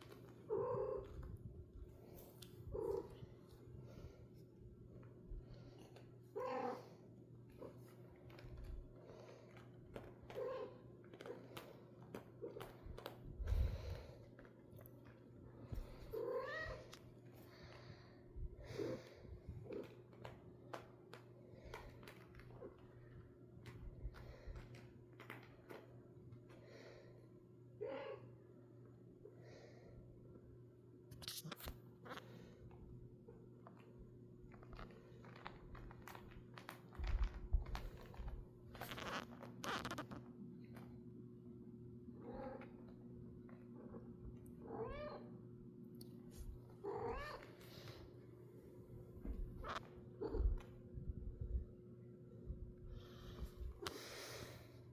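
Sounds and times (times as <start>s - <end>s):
crinkling and clicking: 0.0s - 3.6s, 4.9s - 17.9s, 19.6s - 26.7s, 33.4s - 41.0s
cat meowing: 16.1s - 16.9s, 44.7s - 45.3s
rustling: 33.4s - 40.9s.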